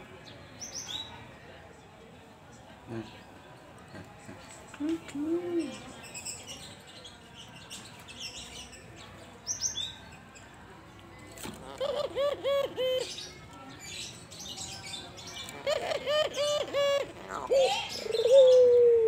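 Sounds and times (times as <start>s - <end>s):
small birds chirping: 5.6s - 11.8s, 12.7s - 18.9s
dove cooing: 11.7s - 13.1s, 15.6s - 19.0s.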